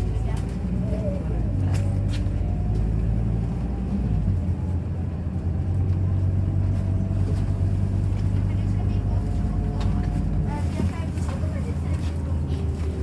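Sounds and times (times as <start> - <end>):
bus engine droning: 0.0 - 13.0.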